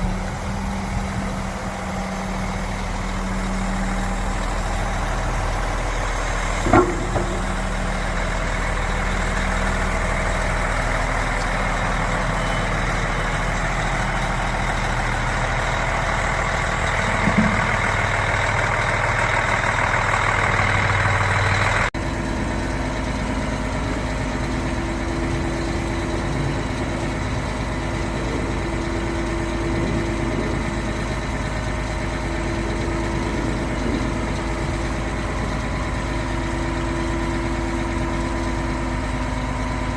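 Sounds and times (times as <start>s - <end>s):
diesel engine running: 0.0s - 39.9s
short knock: 6.6s - 7.7s.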